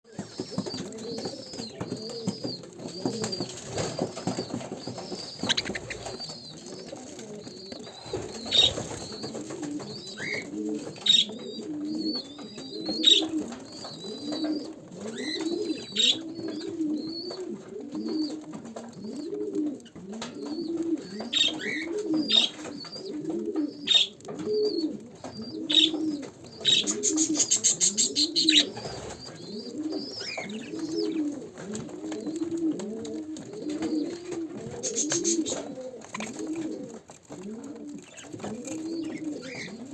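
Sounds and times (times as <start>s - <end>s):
bird cooing: 0.1s - 39.9s
bird chirps and sharp calls: 0.2s - 6.9s, 7.6s - 17.3s, 25.2s - 31.2s, 34.8s - 36.3s
bird fast chattering: 2.4s - 6.8s, 26.5s - 31.2s, 34.8s - 36.3s.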